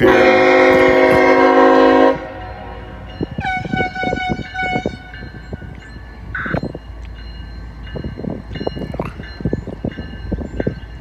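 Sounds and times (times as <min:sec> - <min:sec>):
train horn: 0:00.0 - 0:05.4
train wheels clacking on rails: 0:00.0 - 0:11.0.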